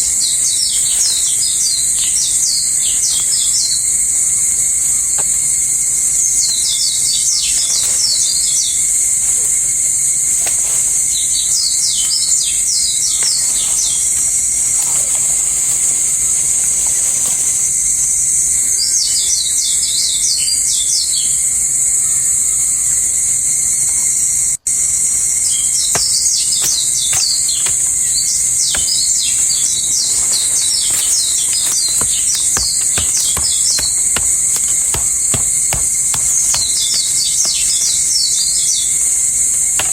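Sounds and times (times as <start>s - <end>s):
birds twittering: 0.0s - 9.1s, 24.7s - 39.9s
insects droning: 0.0s - 39.9s.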